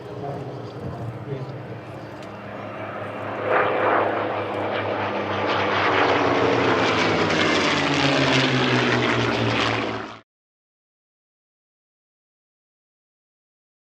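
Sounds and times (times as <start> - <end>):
piston aircraft engine passing: 0.0 - 10.2.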